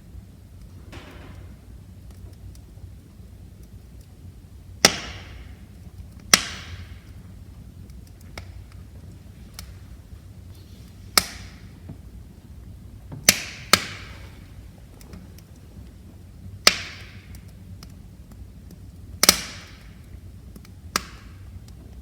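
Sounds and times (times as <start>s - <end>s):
low rumble of flame: 0.0s - 22.0s
wood fire crackling: 0.0s - 22.0s
logs popping: 4.8s - 22.0s.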